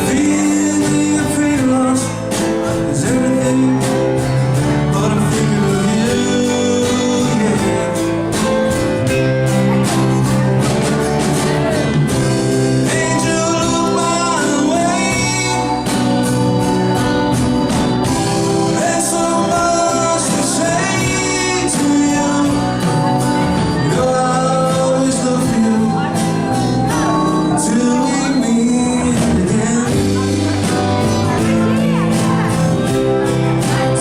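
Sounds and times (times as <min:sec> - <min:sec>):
man and woman singing: 0:00.0 - 0:08.1, 0:12.8 - 0:16.0, 0:18.8 - 0:23.0, 0:23.6 - 0:26.2, 0:26.9 - 0:32.4
live band playing: 0:00.0 - 0:34.0.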